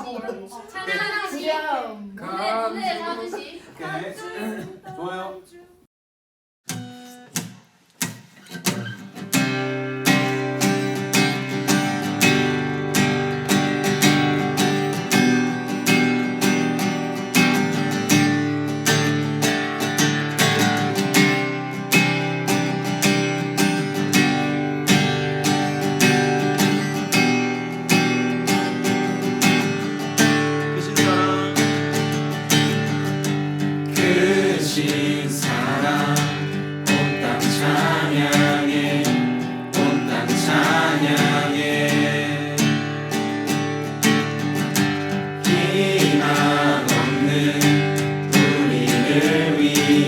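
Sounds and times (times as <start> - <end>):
acoustic guitar strumming: 6.7 - 50.0.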